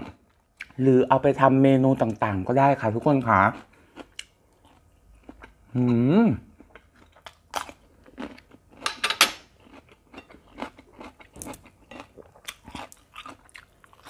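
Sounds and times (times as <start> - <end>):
soft chewing clicks: 3.2 - 5.6
crunching cucumber bites: 9.6 - 14.0.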